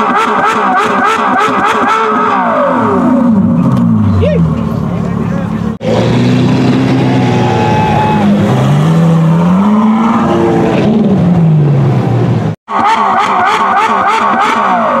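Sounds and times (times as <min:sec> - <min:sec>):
car engine accelerating away: 0:02.3 - 0:12.5.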